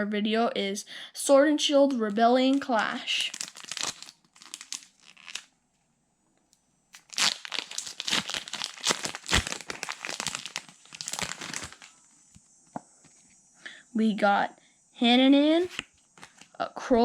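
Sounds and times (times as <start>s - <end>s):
foil wrapper tearing and crinkling: 2.4s - 5.5s, 7.0s - 11.9s.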